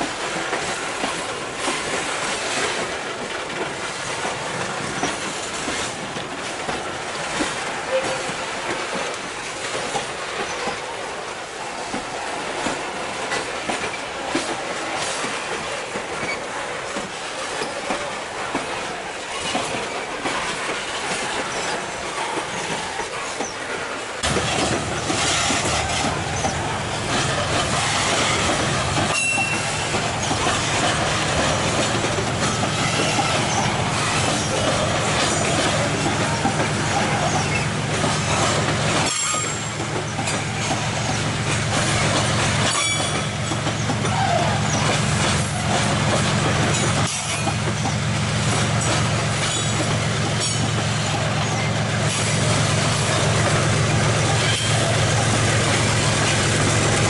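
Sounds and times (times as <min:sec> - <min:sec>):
diesel locomotive engine drone: 0:00.0 - 0:57.0
freight wagons rolling on rails: 0:00.0 - 0:57.0
wheel squeals: 0:20.7 - 0:45.6, 0:48.8 - 0:52.3, 0:54.3 - 0:56.4.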